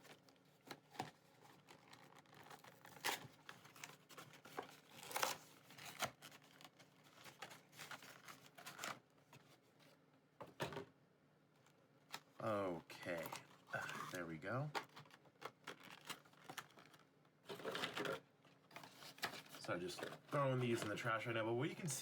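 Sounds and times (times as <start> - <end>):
foil wrappers crinkling: 0.1 - 9.0, 14.8 - 21.0.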